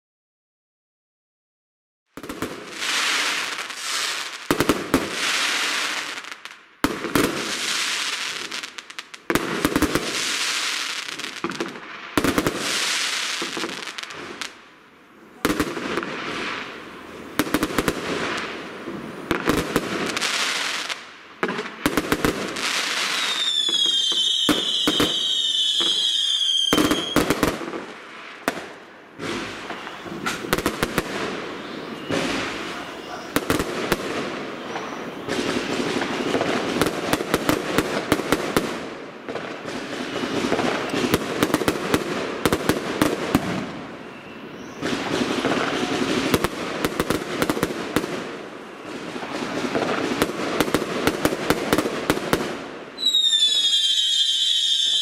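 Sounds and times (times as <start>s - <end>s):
shrill firework whistle: 22.9s - 27.4s, 29.4s - 30.7s, 31.4s - 33.6s, 34.5s - 36.6s, 39.7s - 41.2s, 43.9s - 46.3s, 53.0s - 55.0s.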